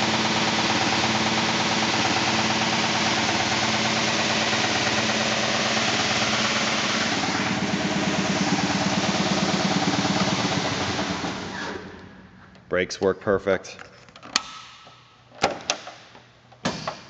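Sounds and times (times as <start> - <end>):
belt sander humming: 0.0 - 12.7.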